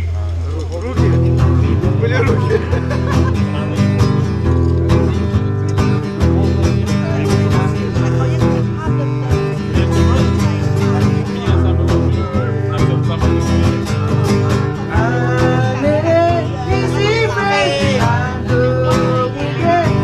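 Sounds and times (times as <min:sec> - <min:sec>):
acoustic guitar strumming: 0:00.0 - 0:20.0
bass line: 0:00.0 - 0:20.0.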